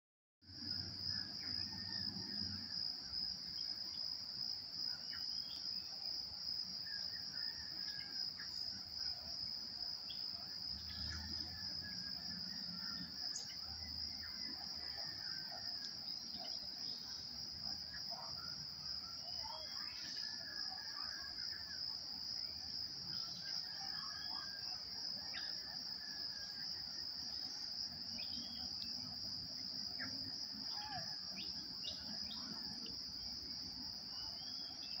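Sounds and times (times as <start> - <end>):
insect chorus trilling: 0.5 - 35.0
faint bird chirps: 34.1 - 35.0.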